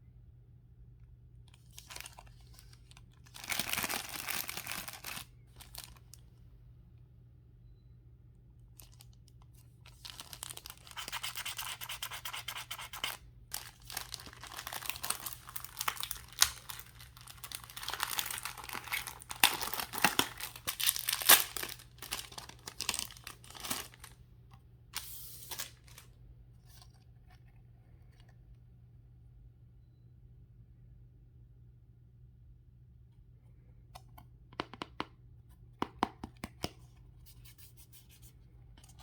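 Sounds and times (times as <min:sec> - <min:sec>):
packaging crinkling and tearing: 0:01.6 - 0:06.2, 0:09.8 - 0:24.2, 0:25.0 - 0:26.1.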